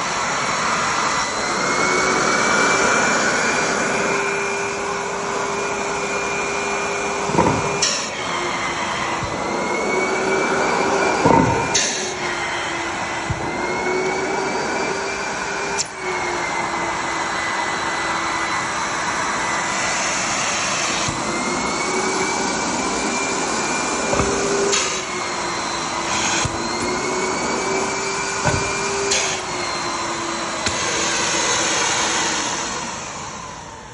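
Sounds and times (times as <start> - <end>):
blower rush and whine: 0.0 - 33.9
sharp knocks: 7.3 - 8.1, 11.2 - 12.0, 28.4 - 29.2.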